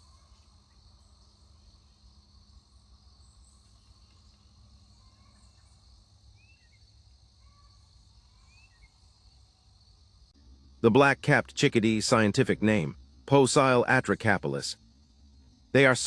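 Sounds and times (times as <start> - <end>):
faint bird chirps: 0.0 - 2.0, 2.9 - 9.8
high insect drone: 0.0 - 16.0.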